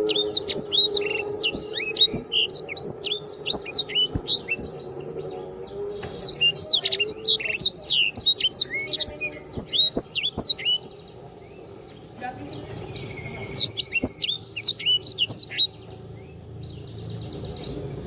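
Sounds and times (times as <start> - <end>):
songbird singing chirps and whistles: 0.0 - 18.0.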